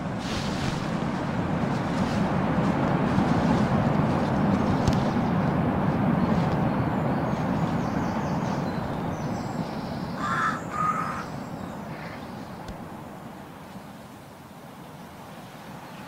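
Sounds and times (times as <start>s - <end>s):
broad rumbling noise: 0.0s - 13.7s
short bird calls: 10.2s - 12.3s.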